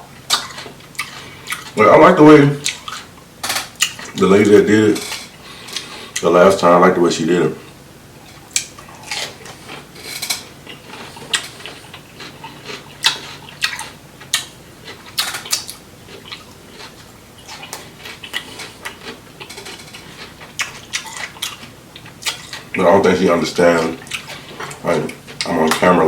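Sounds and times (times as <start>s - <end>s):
wet chewing and smacking: 0.3s - 1.8s, 2.6s - 4.3s, 8.3s - 22.9s, 23.6s - 25.9s.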